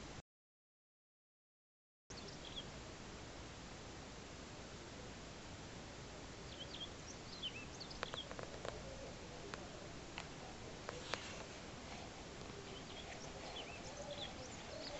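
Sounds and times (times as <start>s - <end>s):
small birds chirping: 2.1s - 2.8s, 6.3s - 14.9s
faint steady hiss: 2.1s - 14.9s.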